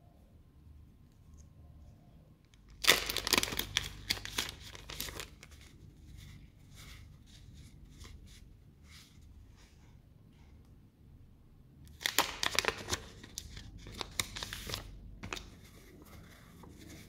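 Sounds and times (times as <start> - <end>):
packaging tearing: 2.8 - 5.5, 11.9 - 15.5
packaging rustling: 2.8 - 5.7, 11.9 - 17.0.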